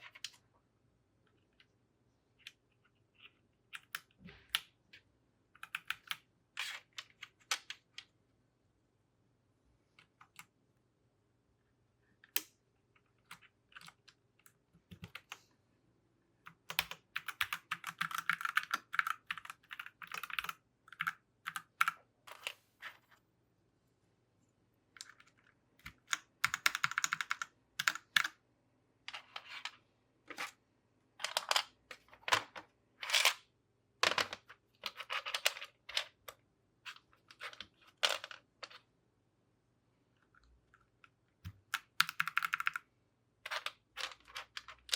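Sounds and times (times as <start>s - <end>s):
mechanical keyboard keys clacking: 16.5s - 22.0s, 25.8s - 28.3s, 41.7s - 42.8s.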